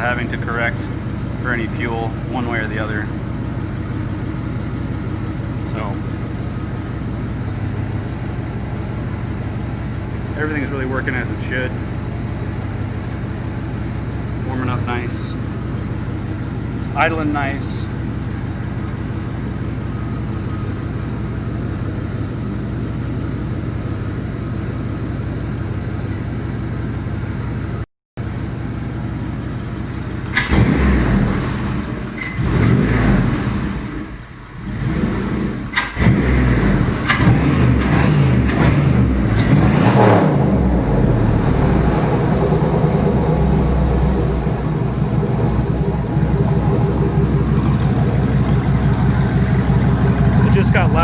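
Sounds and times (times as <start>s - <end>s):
engine idling: 0.0s - 51.0s.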